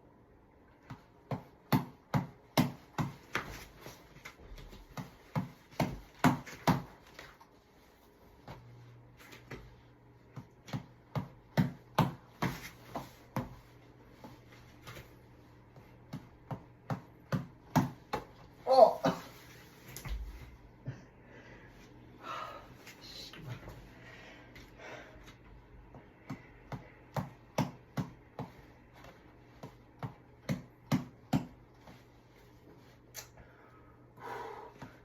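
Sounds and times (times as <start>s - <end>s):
reflex ball being punched: 0.8s - 3.9s, 4.6s - 7.2s, 10.3s - 15.0s, 15.7s - 18.5s, 25.8s - 32.0s.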